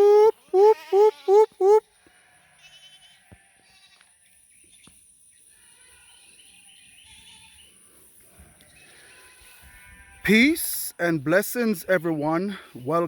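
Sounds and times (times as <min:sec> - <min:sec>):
small birds chirping: 0:04.0 - 0:10.2.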